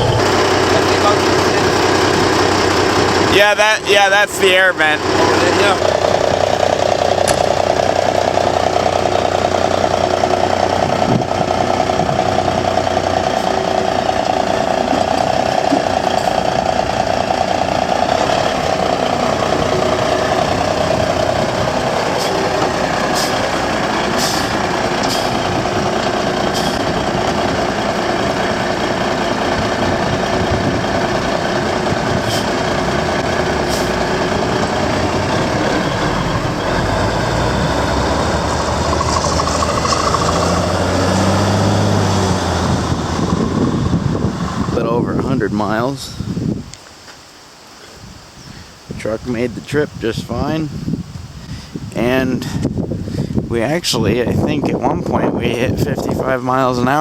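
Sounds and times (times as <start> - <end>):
mid-pitched whine: 0.0 - 40.3
diesel truck engine running: 0.0 - 46.7.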